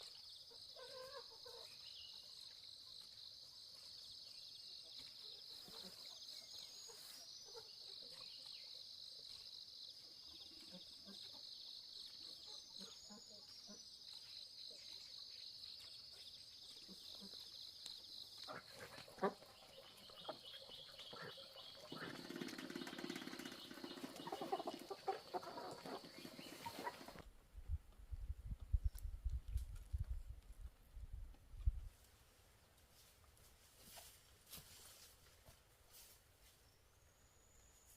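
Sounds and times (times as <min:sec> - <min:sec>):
bird chirps: 0:19.2 - 0:27.2.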